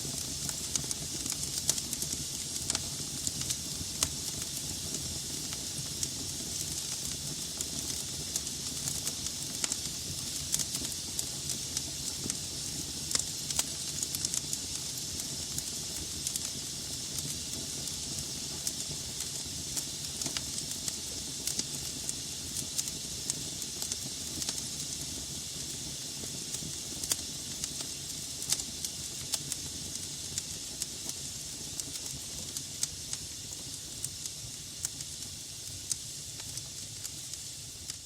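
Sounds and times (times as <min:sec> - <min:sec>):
logs crackling in fireplace: 0:00.0 - 0:38.0.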